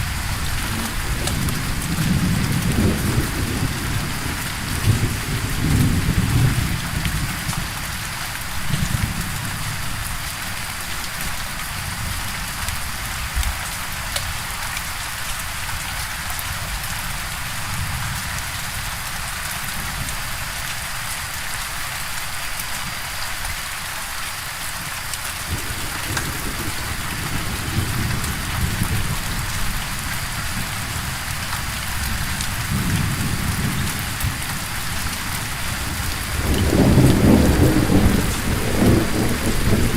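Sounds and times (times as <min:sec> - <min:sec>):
thunder rumbling: 0:00.0 - 0:07.4, 0:25.5 - 0:31.2, 0:31.8 - 0:39.9
heavy rain: 0:00.0 - 0:39.9.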